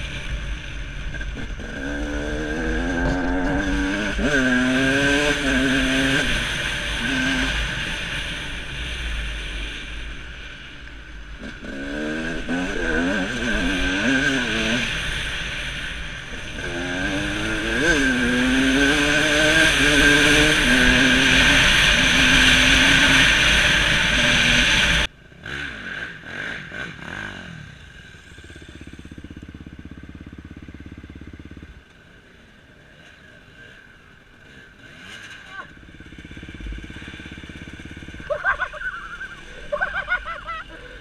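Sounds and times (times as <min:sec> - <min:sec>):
dirt bike engine revving: 0:00.0 - 0:31.9, 0:32.8 - 0:41.0.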